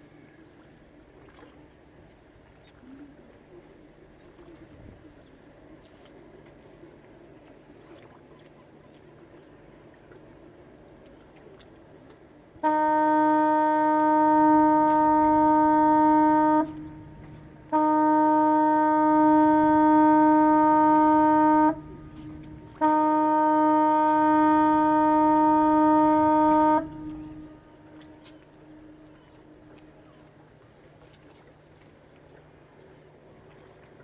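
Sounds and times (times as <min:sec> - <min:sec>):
ship's horn blasts: 0:12.5 - 0:30.9.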